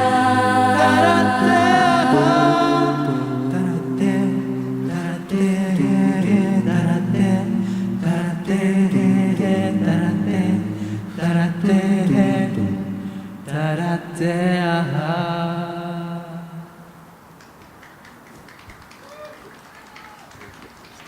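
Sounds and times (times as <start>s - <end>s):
a cappella group singing harmony: 0.0s - 16.8s.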